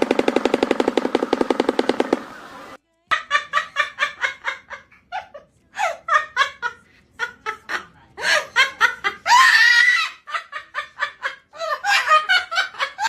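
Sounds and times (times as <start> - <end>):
rapid pulsing rattle: 0.0 - 2.8.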